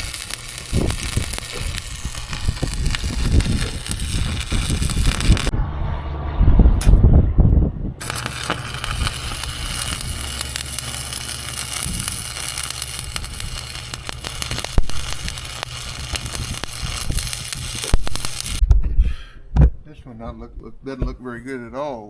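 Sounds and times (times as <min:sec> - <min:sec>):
arc welder crackling and sizzling: 0:00.0 - 0:05.5, 0:08.0 - 0:18.6.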